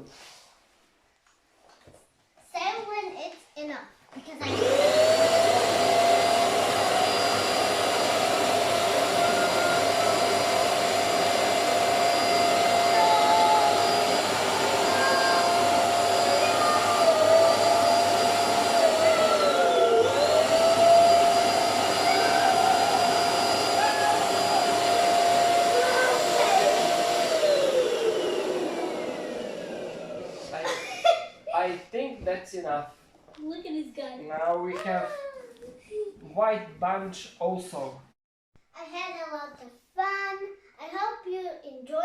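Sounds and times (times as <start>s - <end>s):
electric air blower whining: 4.4s - 31.1s.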